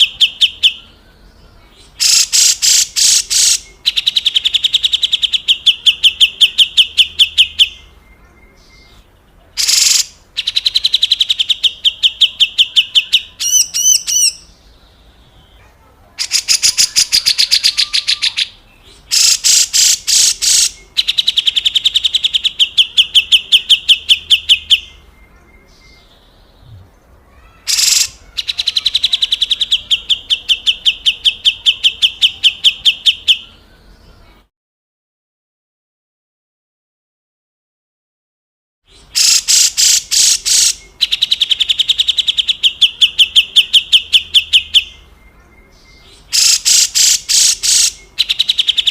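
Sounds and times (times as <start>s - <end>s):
bulbul rasping rattle call: 2.0s - 7.4s, 9.6s - 12.2s, 16.2s - 24.0s, 27.7s - 28.8s, 39.0s - 44.5s, 46.3s - 48.9s.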